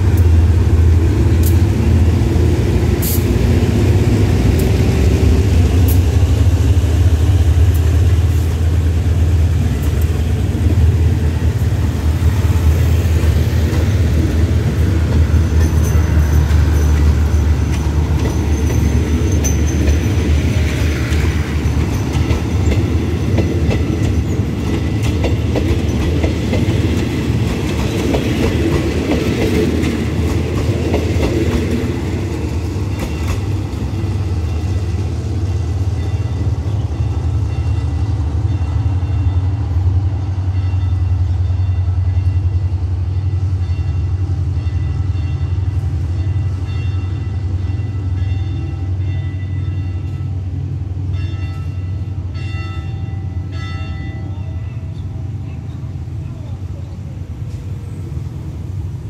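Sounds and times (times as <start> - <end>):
train coaches rumbling past: 0.0 - 59.0
wheels clicking over rail joints: 13.2 - 35.1.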